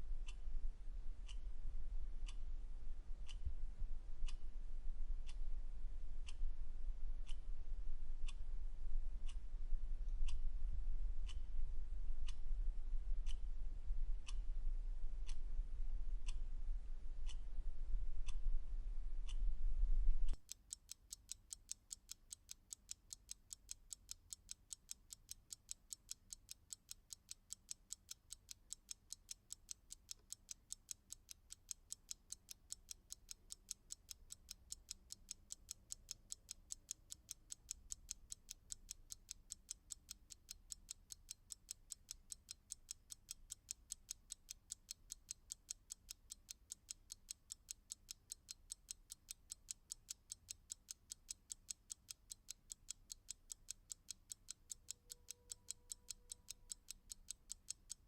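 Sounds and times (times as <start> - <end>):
clock ticking: 11.2 - 11.5, 13.2 - 13.4, 17.2 - 17.5, 20.3 - 58.0.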